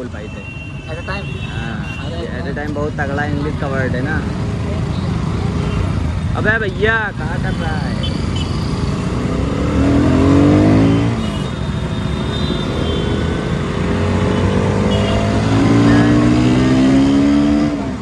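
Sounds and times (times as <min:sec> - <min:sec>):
road and wind noise: 0:00.0 - 0:18.0
motorcycle engine revving: 0:08.0 - 0:18.0.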